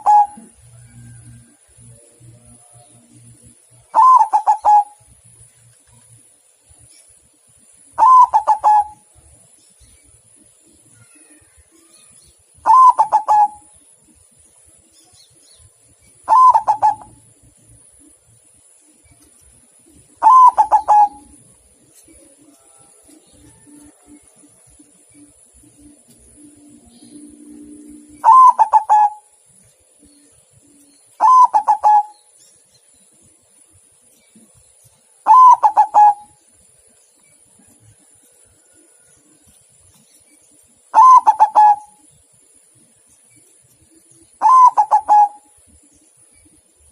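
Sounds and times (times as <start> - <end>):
dove cooing: 0.0 - 1.3, 3.0 - 5.0, 8.0 - 9.1, 12.6 - 13.7, 16.3 - 17.4, 20.2 - 21.5, 26.6 - 29.3, 31.2 - 32.2, 35.2 - 36.4, 40.9 - 42.1, 44.4 - 45.6.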